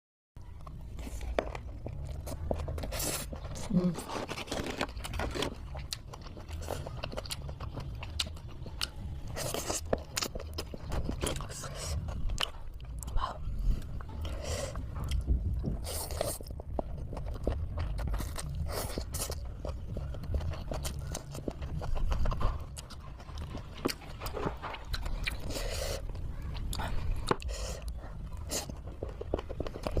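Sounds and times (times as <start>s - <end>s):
person chewing food: 0.4s - 30.0s
low rumble: 10.0s - 30.0s.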